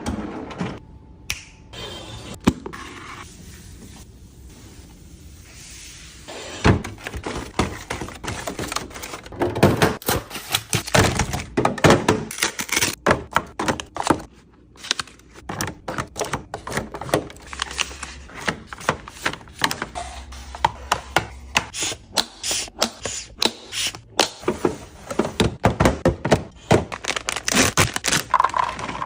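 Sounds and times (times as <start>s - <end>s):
objects knocking and clicking: 28.0s - 29.0s.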